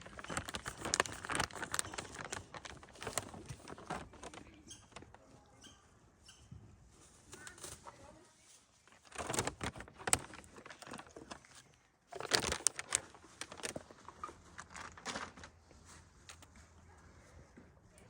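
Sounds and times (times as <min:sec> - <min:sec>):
plastic bags crinkling: 0:00.0 - 0:05.2, 0:08.8 - 0:16.5.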